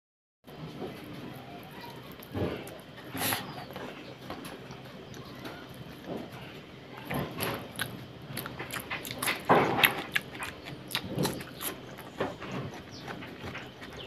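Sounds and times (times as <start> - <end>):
wet chewing and lip-smacking: 7.0 - 14.0.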